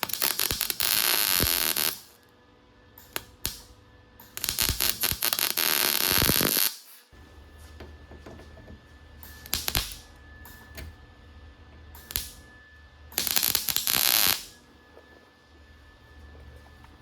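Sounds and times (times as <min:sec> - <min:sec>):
welding arc bursts: 0:00.0 - 0:02.2, 0:03.0 - 0:07.6, 0:09.2 - 0:11.0, 0:11.9 - 0:12.5, 0:13.1 - 0:14.6
faint steady hum: 0:00.0 - 0:17.0.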